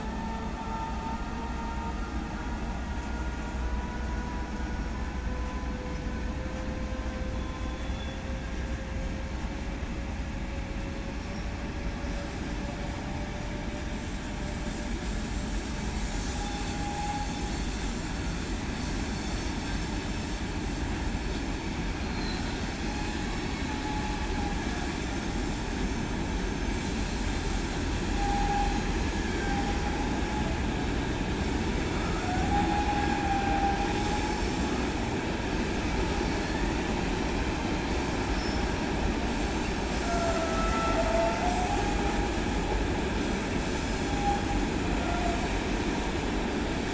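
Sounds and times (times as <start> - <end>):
train rumbling past: 0.0 - 46.9
high wheel squeals: 16.2 - 18.3, 21.4 - 24.7.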